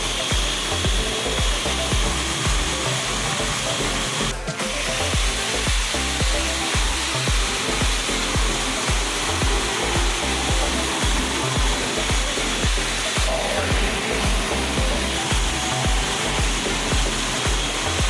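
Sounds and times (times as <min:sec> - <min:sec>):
background music with beat: 0:00.0 - 0:18.0
power tool whirring: 0:00.0 - 0:18.0.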